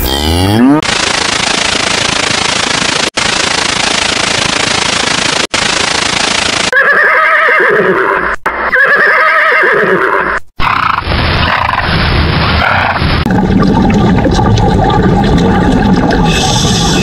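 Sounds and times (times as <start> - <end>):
horse whinnying: 6.7 - 10.4.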